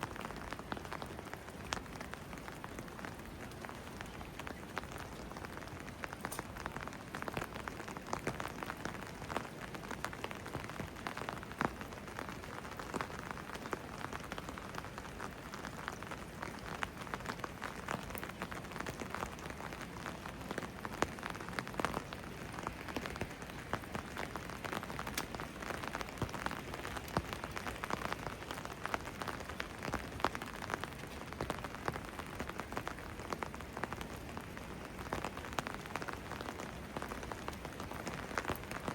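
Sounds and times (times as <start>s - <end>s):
raindrops ticking on surfaces: 0.0s - 38.9s
steady rain falling: 0.0s - 38.9s.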